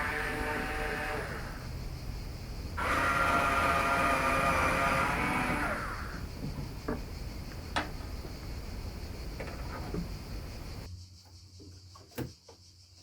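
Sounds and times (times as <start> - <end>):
electric power tool whirring: 0.0 - 1.6, 2.8 - 6.2.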